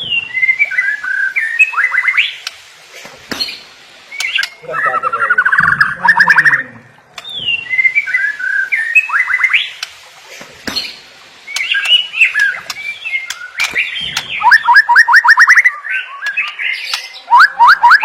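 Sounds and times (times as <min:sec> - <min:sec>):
bird singing whistled phrases: 0:00.0 - 0:02.4, 0:03.4 - 0:09.7, 0:11.5 - 0:18.0.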